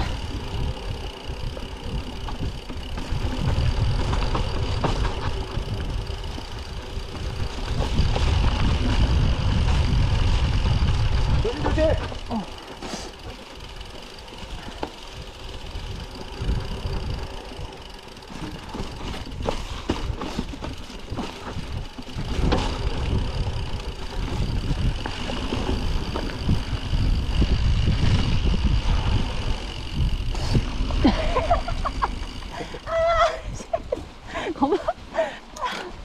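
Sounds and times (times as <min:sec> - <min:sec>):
wind on microphone: 0:00.0 - 0:12.4, 0:19.0 - 0:33.9
bike knocking and rattling: 0:00.0 - 0:36.0
tyres rumbling on snow: 0:00.0 - 0:36.0.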